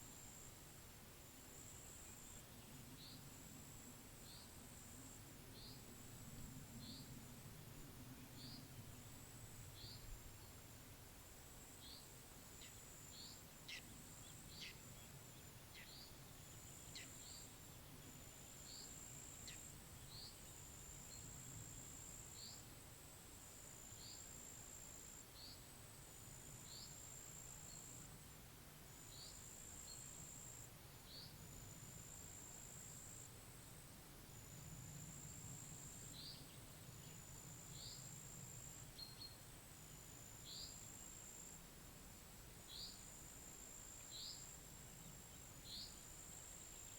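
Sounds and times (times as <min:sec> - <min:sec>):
faint low wind rumble: 0:00.0 - 0:46.9
bird chirping: 0:11.8 - 0:21.3.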